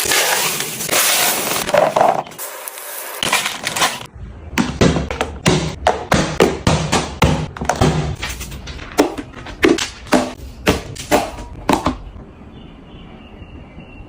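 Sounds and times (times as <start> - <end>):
containers being set down: 0.0 - 2.4.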